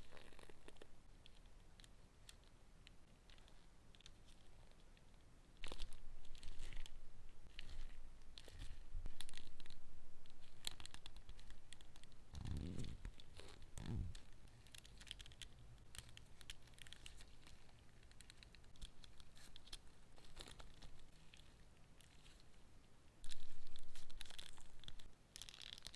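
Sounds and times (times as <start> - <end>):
packaging crinkling and tearing: 5.6 - 22.4, 23.3 - 25.9.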